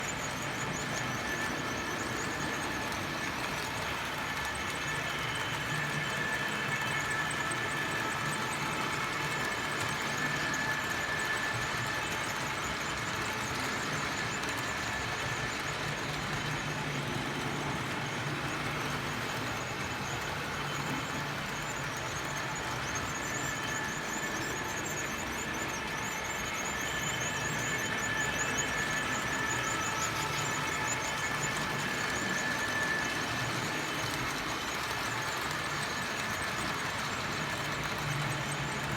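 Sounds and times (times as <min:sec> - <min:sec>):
model train motors whirring: 0:00.0 - 0:38.9
wheels rolling on track: 0:00.0 - 0:38.9.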